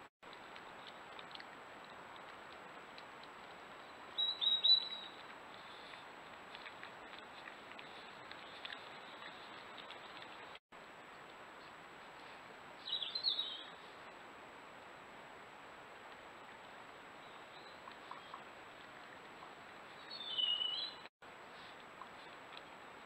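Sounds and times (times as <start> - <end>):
bird chirping: 4.1 - 6.0, 12.8 - 13.8, 19.9 - 21.1.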